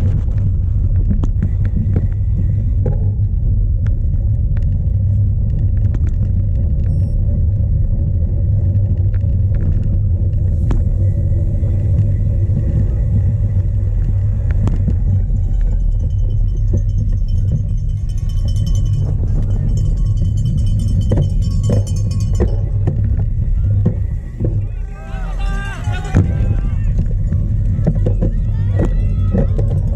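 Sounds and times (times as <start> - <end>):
wind buffeting microphone: 7.6 - 29.9
bicycle clicks and knocks: 13.4 - 24.6.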